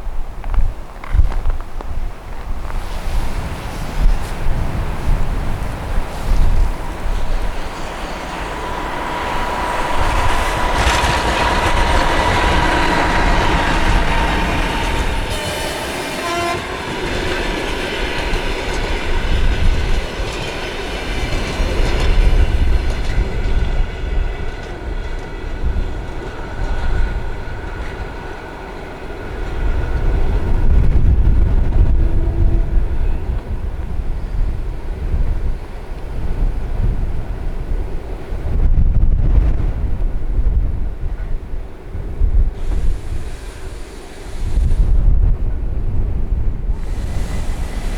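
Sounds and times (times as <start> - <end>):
wind buffeting microphone: 0.0 - 47.9
train passing: 2.4 - 47.9
train horn: 6.1 - 19.5, 29.0 - 34.5.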